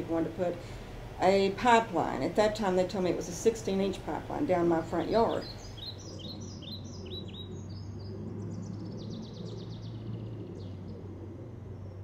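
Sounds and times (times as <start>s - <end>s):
songbirds chirping: 0.0s - 12.0s
steady low hum: 0.0s - 12.0s
bird trill: 5.2s - 11.1s.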